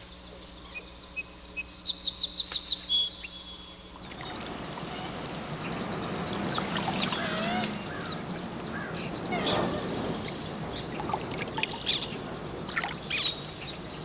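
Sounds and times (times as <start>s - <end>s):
steady outdoor hiss: 0.0s - 14.0s
birds chirping: 0.3s - 14.0s
wavering sliding bird calls: 4.0s - 14.0s.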